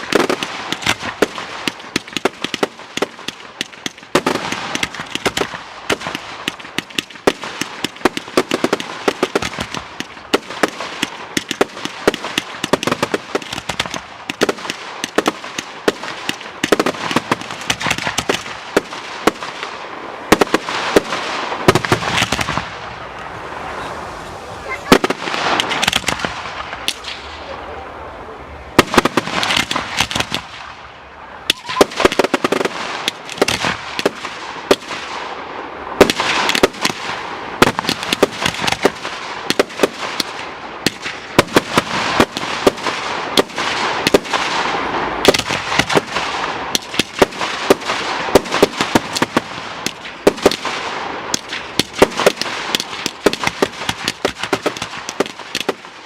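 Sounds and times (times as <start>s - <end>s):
fireworks bangs and crackling: 0.0s - 56.0s
hissing haze: 2.8s - 50.1s.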